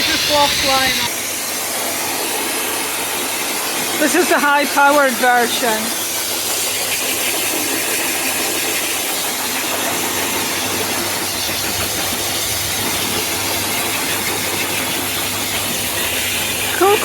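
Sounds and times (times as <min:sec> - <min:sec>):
blow dryer rushing air: 0:00.0 - 0:17.0.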